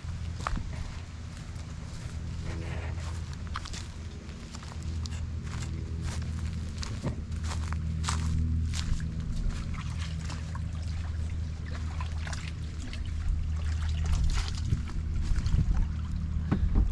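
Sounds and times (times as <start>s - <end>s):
water splashing against hull: 9.4s - 16.2s.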